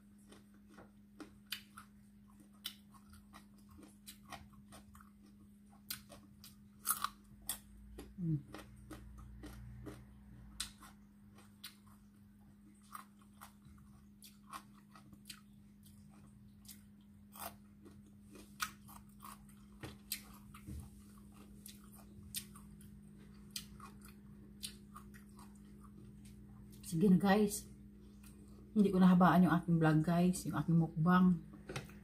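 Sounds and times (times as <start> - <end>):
person chewing and crunching food: 0.0 - 27.0, 27.6 - 28.8
steady low hum: 0.0 - 32.0.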